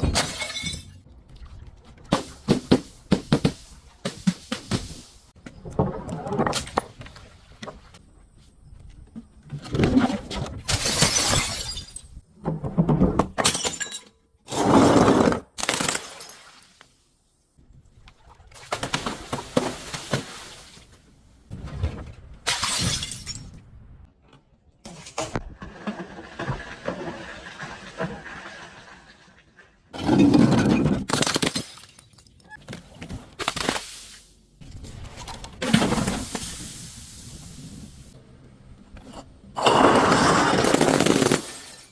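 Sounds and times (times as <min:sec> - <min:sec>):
glass bottles smashing: 0:00.0 - 0:01.0, 0:10.7 - 0:12.2, 0:13.4 - 0:14.2, 0:22.5 - 0:23.5.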